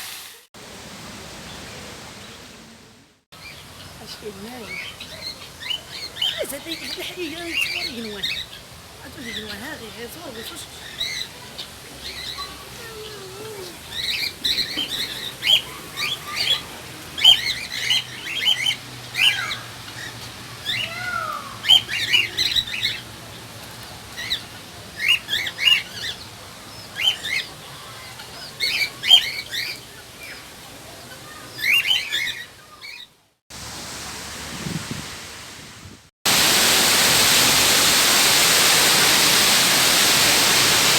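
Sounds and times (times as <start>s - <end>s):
birds squawking and chirping: 3.4s - 33.1s.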